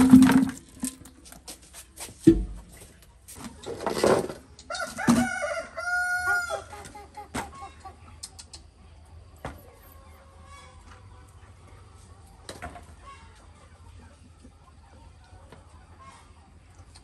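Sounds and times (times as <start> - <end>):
chicken calls: 4.4 - 17.0.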